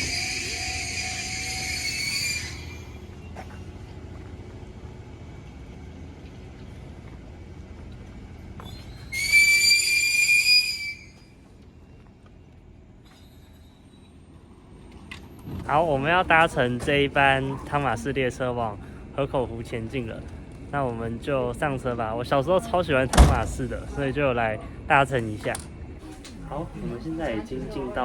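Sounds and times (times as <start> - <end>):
high shrill whistle: 0.0 - 3.0, 8.6 - 11.4
low rumble of station machinery: 0.0 - 28.0.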